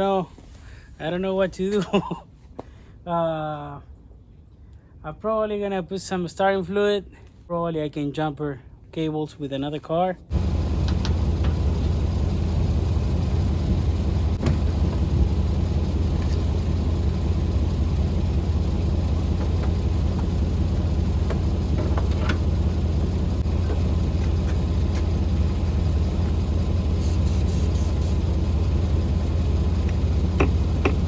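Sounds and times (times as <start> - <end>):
car engine idling: 10.3 - 31.0.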